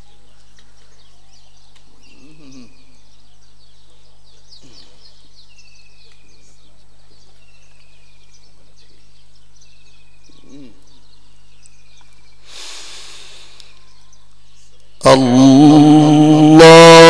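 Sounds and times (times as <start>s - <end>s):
short hiss: 12.4s - 13.8s.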